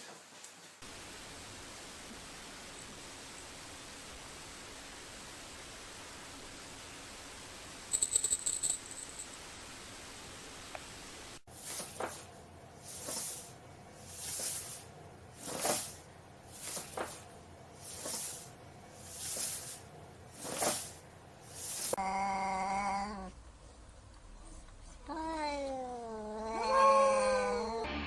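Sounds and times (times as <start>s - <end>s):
cat meowing: 25.1s - 27.8s.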